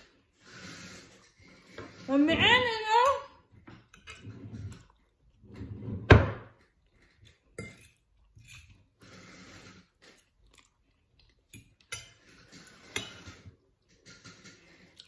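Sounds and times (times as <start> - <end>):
chewing and crunching food: 3.8 - 5.5, 6.6 - 15.0.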